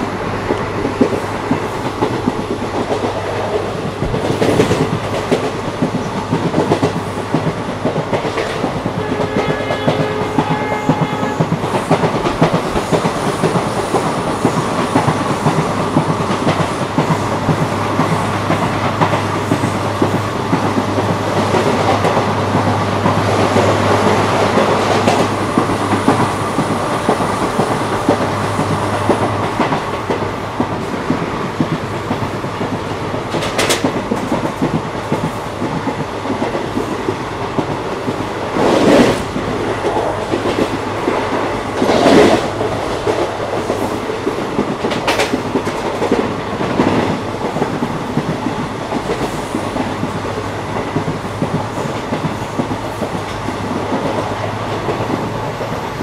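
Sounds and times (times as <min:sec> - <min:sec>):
train wheels clattering on track: 0:00.0 - 0:56.0.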